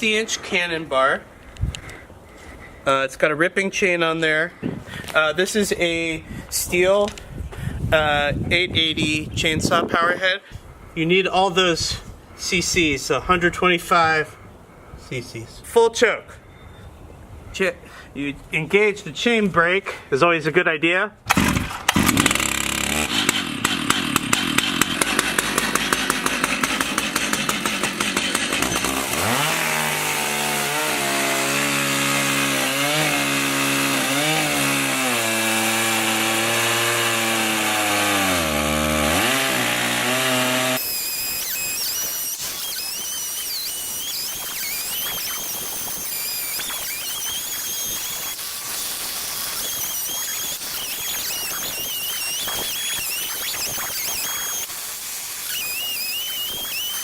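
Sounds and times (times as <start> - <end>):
chainsaw engine running rough: 21.3 - 57.0.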